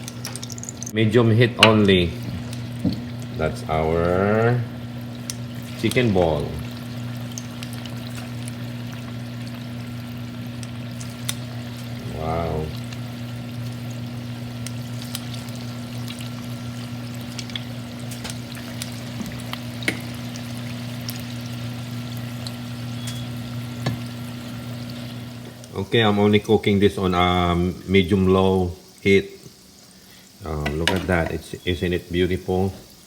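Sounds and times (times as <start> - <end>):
food deep-frying in hot oil: 0.0 - 1.0, 1.6 - 33.0
steady low hum: 0.0 - 32.4
small pops and crackles: 6.6 - 11.9, 12.8 - 21.4.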